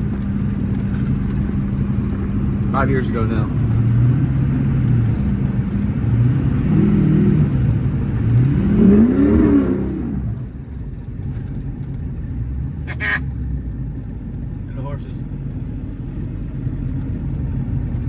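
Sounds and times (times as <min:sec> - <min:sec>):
diesel truck engine revving: 0:00.0 - 0:10.8.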